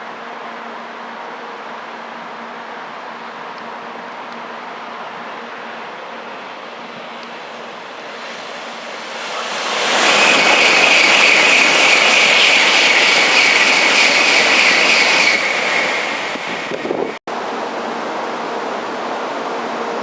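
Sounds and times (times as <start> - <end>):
train rushing by: 0.9 - 20.0
high whine: 8.0 - 17.2.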